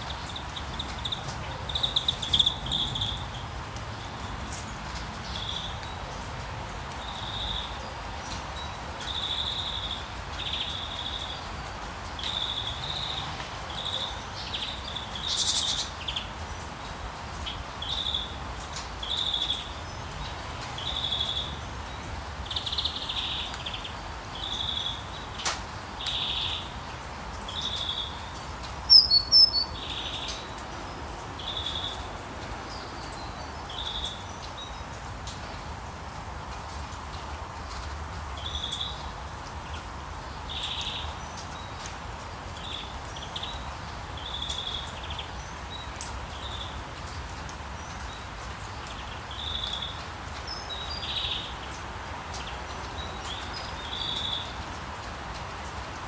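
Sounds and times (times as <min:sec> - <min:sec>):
bird chirping: 0:00.0 - 0:03.4, 0:13.8 - 0:16.3, 0:27.5 - 0:30.6.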